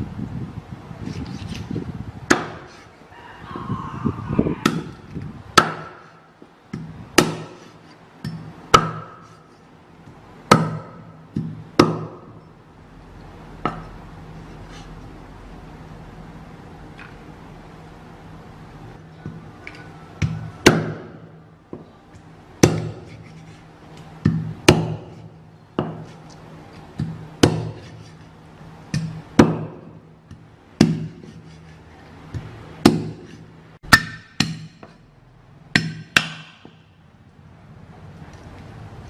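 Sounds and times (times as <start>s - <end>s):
cleaver chopping on wooden board: 2.3s - 2.8s, 5.6s - 6.1s, 6.8s - 9.4s, 10.5s - 12.4s, 20.2s - 21.8s, 22.6s - 23.3s, 24.2s - 26.2s, 27.0s - 28.1s, 29.0s - 31.4s, 32.4s - 35.0s.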